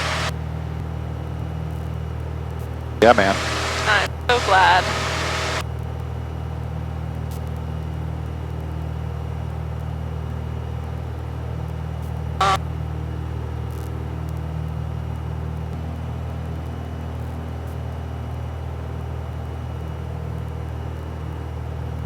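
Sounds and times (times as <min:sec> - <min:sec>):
aircraft engine droning: 0:00.0 - 0:00.3, 0:03.0 - 0:05.6.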